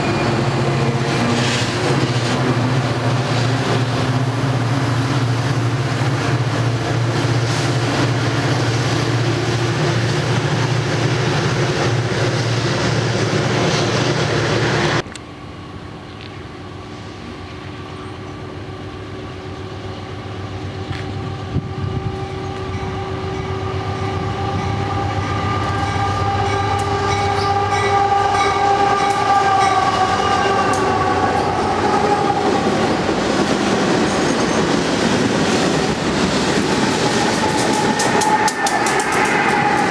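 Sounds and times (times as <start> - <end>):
train approaching: 0.0 - 39.9
train rumbling past: 0.0 - 39.9.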